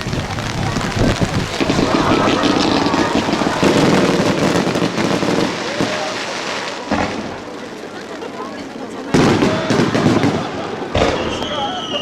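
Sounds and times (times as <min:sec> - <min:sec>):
wind buffeting microphone: 0:00.0 - 0:05.5
heavy rain: 0:00.0 - 0:11.9.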